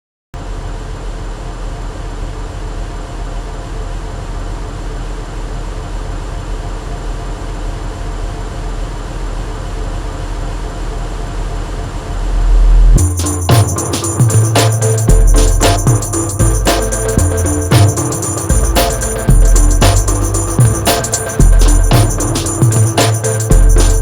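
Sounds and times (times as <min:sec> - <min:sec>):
dense noise drone: 0:00.4 - 0:24.0
heavy low rumble: 0:14.2 - 0:24.0.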